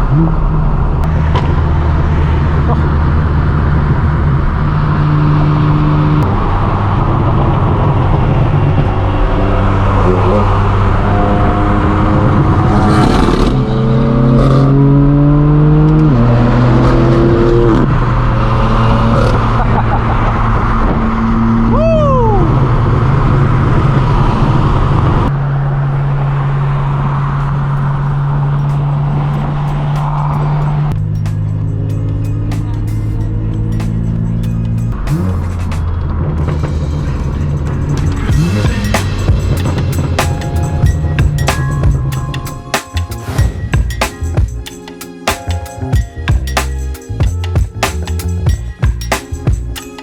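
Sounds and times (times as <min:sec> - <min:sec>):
loud car exhaust: 0:00.0 - 0:44.8
road noise: 0:00.0 - 0:50.0
car exhaust running steadily: 0:22.6 - 0:42.7.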